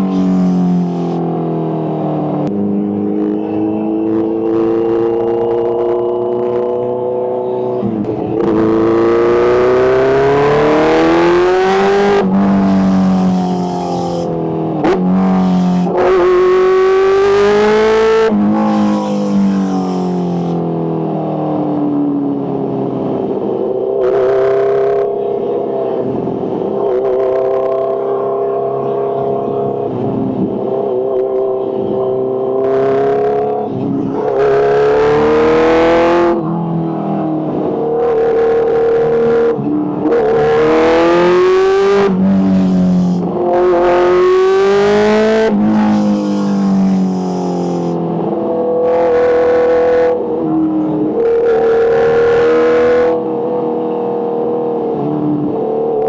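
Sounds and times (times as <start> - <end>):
motorcycle engine revving: 0.0 - 56.0
loud rushing noise: 42.1 - 48.0.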